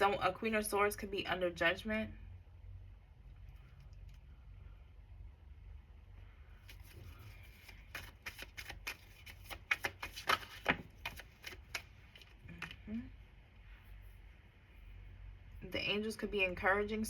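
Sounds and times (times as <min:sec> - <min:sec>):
cards being shuffled: 0:06.6 - 0:12.8.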